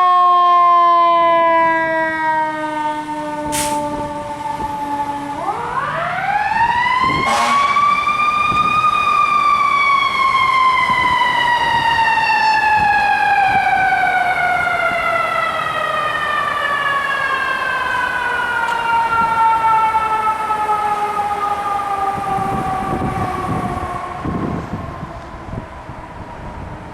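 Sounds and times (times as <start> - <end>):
mechanical siren winding up and down: 5.5 - 24.7.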